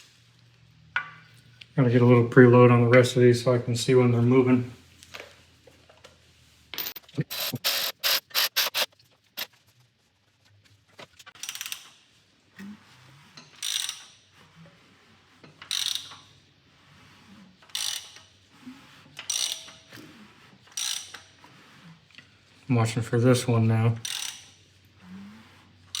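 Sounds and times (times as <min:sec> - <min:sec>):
socket ratchet clicking: 0:06.8 - 0:08.9.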